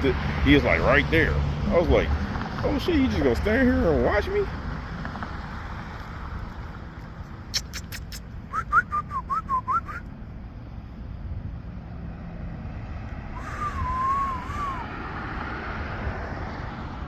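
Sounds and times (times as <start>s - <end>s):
traffic rumble: 0.0s - 17.0s
tongue clicks: 7.5s - 10.1s
person whistling: 8.5s - 10.0s, 13.4s - 14.9s.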